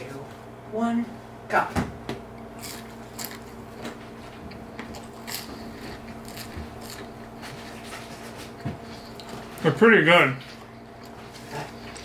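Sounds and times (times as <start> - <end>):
person chewing food: 2.4 - 9.6, 10.4 - 12.0.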